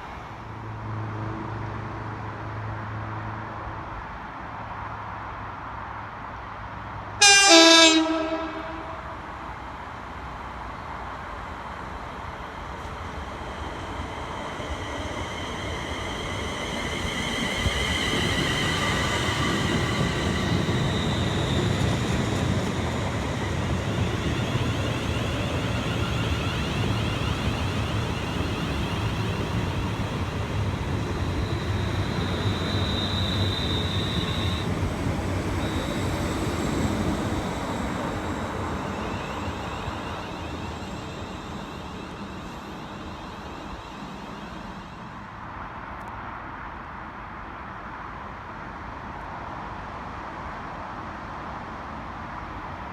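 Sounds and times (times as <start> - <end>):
train rumbling: 7.0 - 46.3
high whining tones: 15.6 - 45.2.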